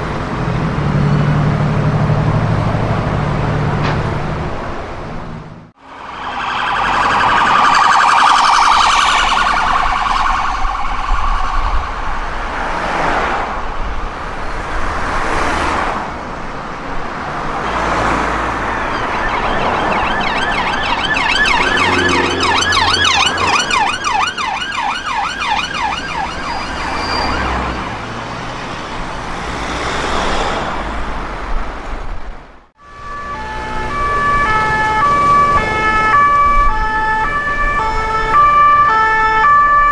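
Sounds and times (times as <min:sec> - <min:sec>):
siren in stepped tones: 0:05.8 - 0:12.3, 0:17.7 - 0:28.1, 0:32.8 - 0:39.9
emergency vehicle sirens wailing: 0:05.8 - 0:13.1, 0:16.6 - 0:29.9, 0:32.8 - 0:39.9.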